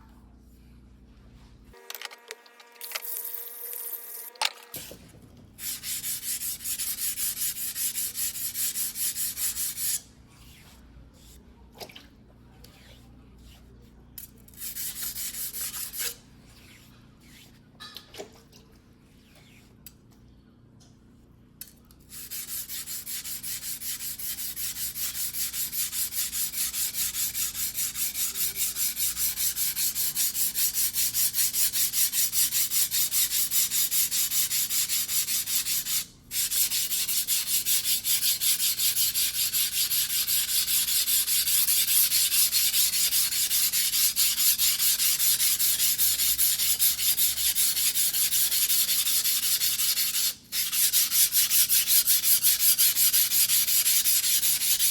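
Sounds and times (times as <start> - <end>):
knife scraping on whetstone: 35.5 - 54.9.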